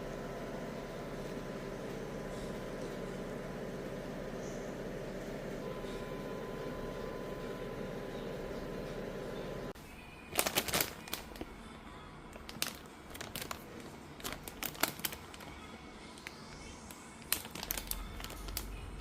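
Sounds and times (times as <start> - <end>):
crinkling: 10.3 - 11.6, 12.3 - 19.0.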